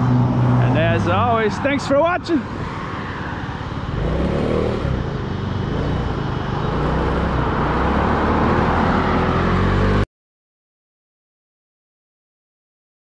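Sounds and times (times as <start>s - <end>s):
road noise: 0.0s - 10.1s.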